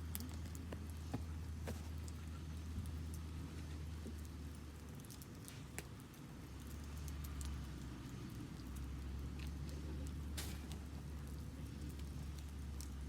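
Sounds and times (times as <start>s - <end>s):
low fire rumble: 0.0s - 13.0s
wood fire crackling: 0.0s - 13.0s.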